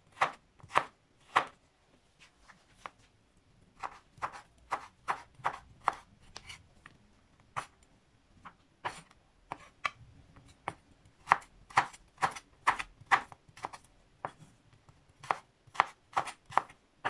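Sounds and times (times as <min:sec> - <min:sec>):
knife chopping on wooden board: 0:00.1 - 0:01.6, 0:03.8 - 0:06.5, 0:10.6 - 0:14.4, 0:15.2 - 0:16.8.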